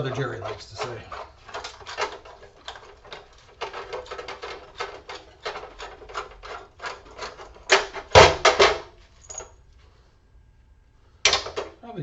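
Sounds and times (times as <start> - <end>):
screwdriver scraping in screw slot: 0.0 - 7.8.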